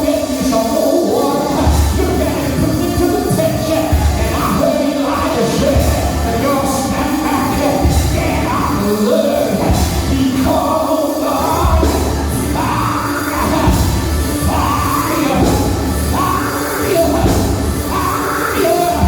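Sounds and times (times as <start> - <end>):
person singing over a band: 0.0 - 19.0
heavy low drum hits: 11.5 - 18.3.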